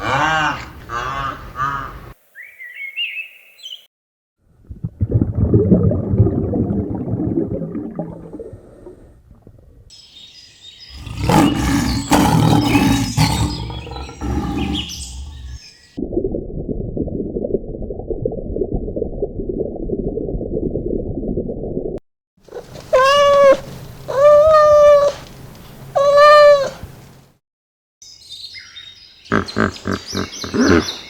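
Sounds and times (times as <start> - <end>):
low rough animal call: 10.9 - 15.7, 29.3 - 31.0
pitched animal call: 10.9 - 15.7, 22.6 - 25.2, 26.0 - 26.8, 29.3 - 31.0.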